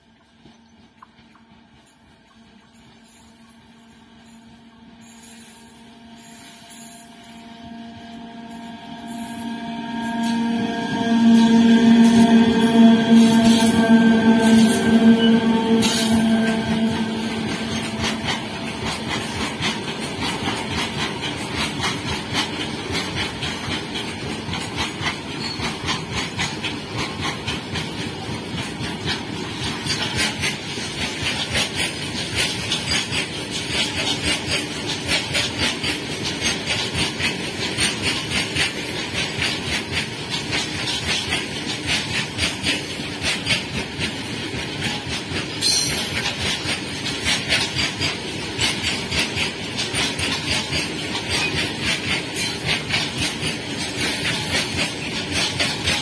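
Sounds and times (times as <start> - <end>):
freight train rushing rumble: 0.0 - 56.0
wheels clattering over rail joints: 19.0 - 56.0.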